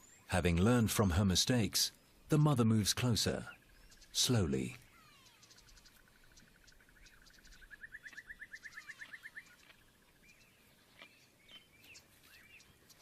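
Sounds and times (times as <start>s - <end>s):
bird trill: 3.0s - 13.0s
short bird chirps: 3.8s - 9.8s.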